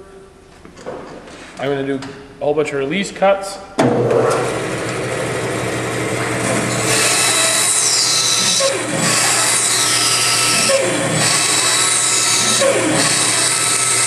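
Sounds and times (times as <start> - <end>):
bandsaw running: 4.2 - 14.0
bandsaw cutting wood: 4.3 - 14.0.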